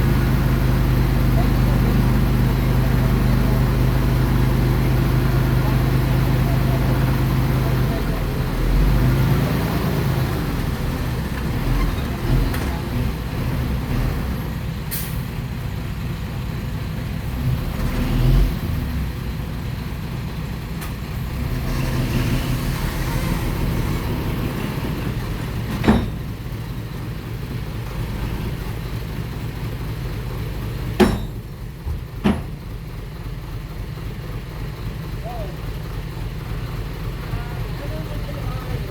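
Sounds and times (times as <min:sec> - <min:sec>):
heavy diesel engine running: 0:00.0 - 0:38.9
sharp metallic knocks: 0:31.0 - 0:32.6.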